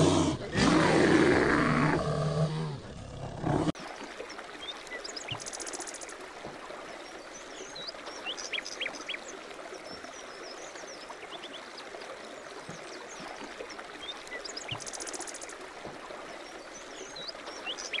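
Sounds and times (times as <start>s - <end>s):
running water: 3.4s - 18.0s
small birds chirping: 4.6s - 18.0s.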